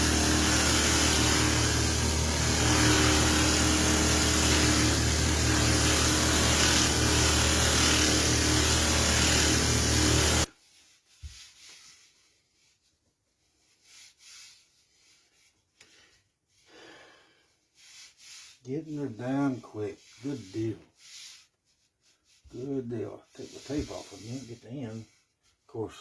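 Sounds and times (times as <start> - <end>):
wood lathe cutting: 0.0 - 10.5.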